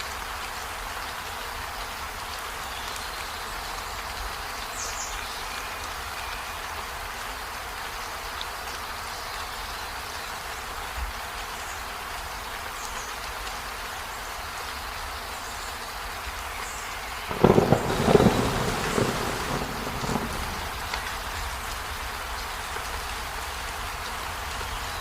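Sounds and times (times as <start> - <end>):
rain falling: 0.0 - 25.0
thunder clap rumbling: 17.3 - 22.0.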